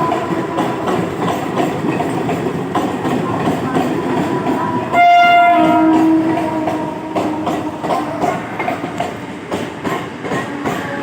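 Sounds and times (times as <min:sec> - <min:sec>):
train horn: 0:00.0 - 0:01.4, 0:04.6 - 0:08.5
train rumble: 0:00.0 - 0:11.0.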